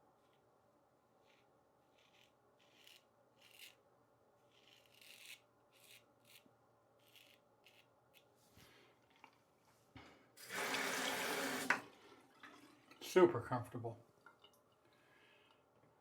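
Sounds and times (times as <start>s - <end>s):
razor cutting stubble: 1.2s - 3.8s, 4.5s - 8.3s.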